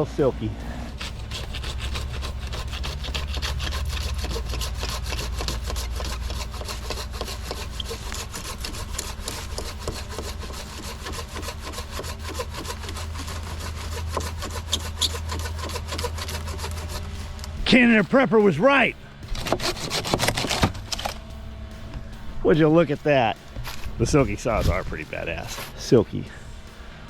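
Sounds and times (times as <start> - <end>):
hand saw cutting log: 0.0 - 17.9, 19.2 - 21.2.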